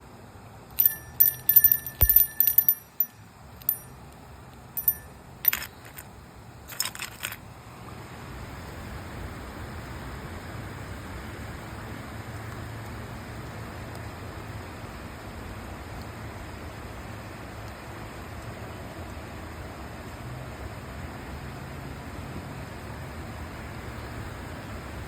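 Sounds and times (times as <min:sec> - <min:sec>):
ringing metallic clinks: 0:00.8 - 0:04.0, 0:04.8 - 0:06.0.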